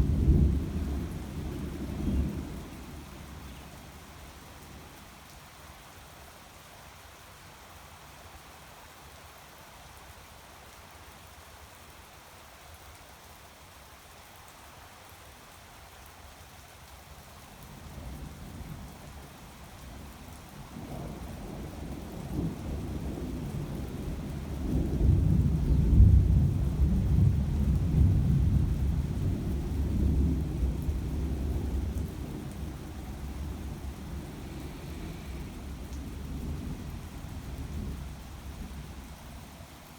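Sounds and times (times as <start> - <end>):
steady rain: 0.0 - 39.9
thunder rolling: 24.8 - 39.0.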